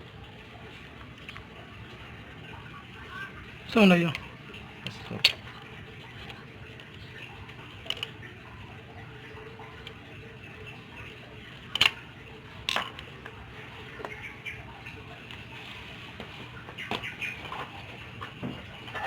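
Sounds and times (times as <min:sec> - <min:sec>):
parts clicking and clinking: 0:11.6 - 0:12.0, 0:12.6 - 0:13.4.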